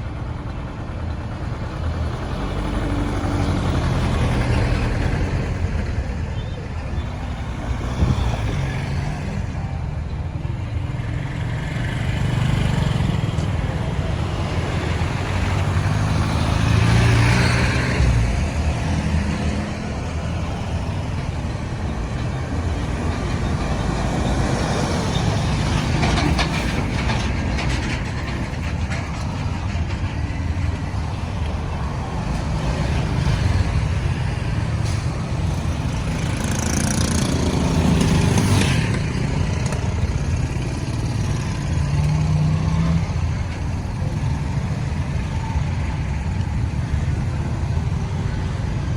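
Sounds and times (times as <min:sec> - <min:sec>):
road traffic rumble: 0:00.0 - 0:48.9
vehicle passing loudly: 0:11.1 - 0:29.0, 0:30.7 - 0:48.9.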